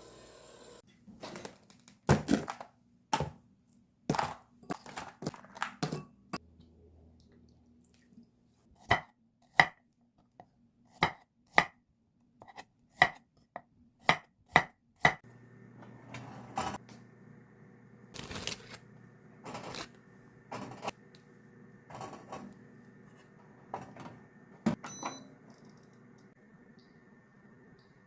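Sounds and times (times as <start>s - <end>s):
knife chopping on cutting board: 11.0s - 11.7s
steady hum: 15.3s - 28.0s.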